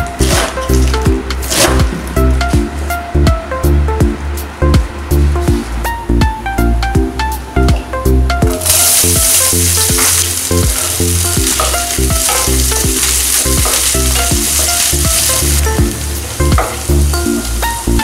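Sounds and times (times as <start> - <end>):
onion sizzling in hot oil: 8.5 - 18.0.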